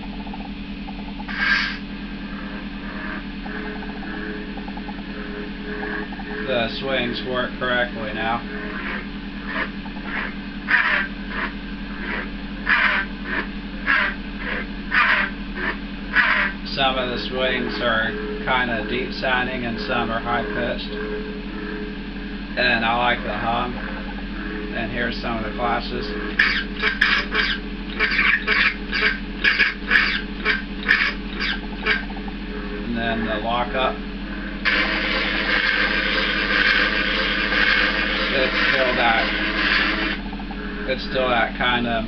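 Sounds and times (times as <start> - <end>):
steady electric hum: 0.0 - 42.0
buzzy lightsaber clashes: 1.2 - 20.6, 25.2 - 32.4, 34.7 - 40.6.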